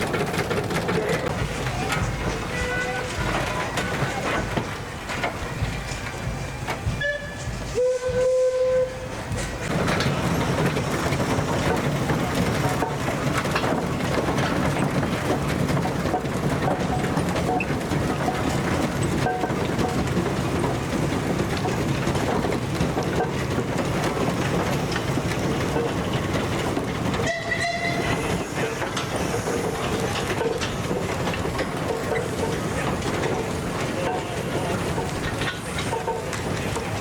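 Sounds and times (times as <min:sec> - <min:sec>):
steam engines clattering and rumbling: 0:00.0 - 0:37.0.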